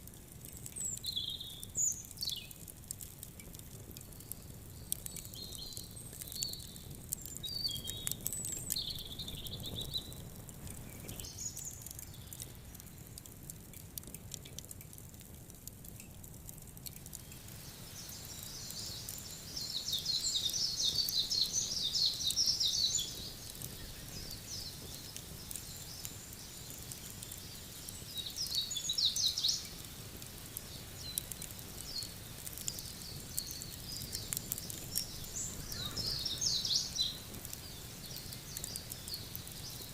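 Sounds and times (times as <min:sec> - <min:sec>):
wood fire crackling: 0:00.0 - 0:39.9
small birds chirping: 0:00.4 - 0:13.4, 0:16.9 - 0:39.9
high bird twittering: 0:35.1 - 0:37.2.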